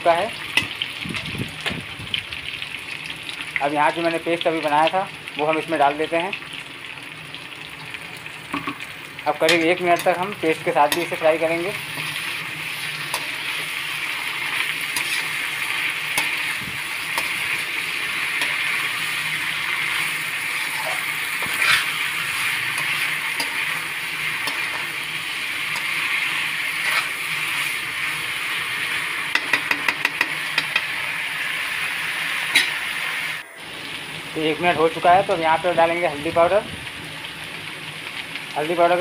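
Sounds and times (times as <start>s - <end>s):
food sizzling in hot oil: 0.0s - 39.0s
metal spatula scraping: 10.8s - 27.8s
spatula clicks and taps: 29.3s - 30.9s.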